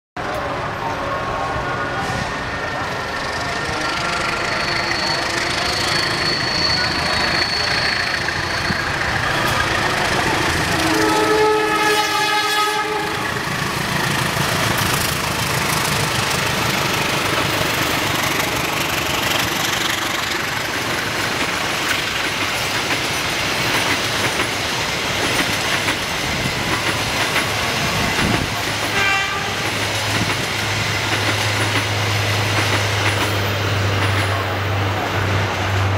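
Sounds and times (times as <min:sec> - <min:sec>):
train rumble and wheel clatter: 0:00.2 - 0:35.9
locomotive horn: 0:10.6 - 0:13.4, 0:28.9 - 0:29.7.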